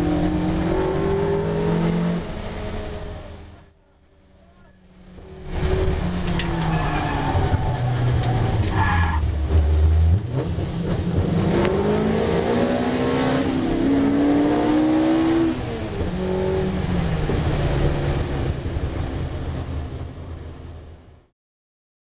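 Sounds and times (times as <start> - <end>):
race car engine accelerating: 0.0 - 3.8, 5.2 - 18.8.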